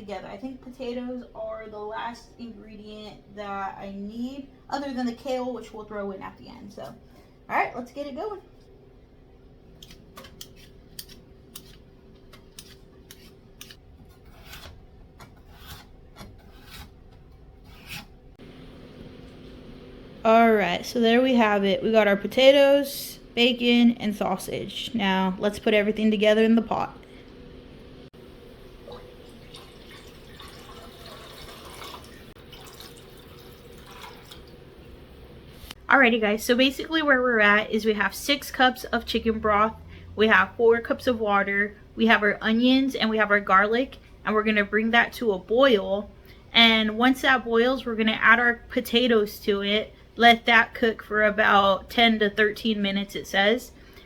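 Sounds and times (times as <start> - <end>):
peeler scraping potato skin: 12.5 - 18.2
liquid pouring into a pot: 28.6 - 35.0.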